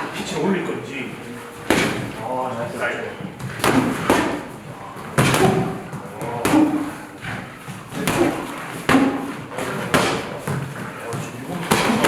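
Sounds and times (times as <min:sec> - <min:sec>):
boxing gloves punching: 0:01.7 - 0:02.2, 0:03.4 - 0:12.0.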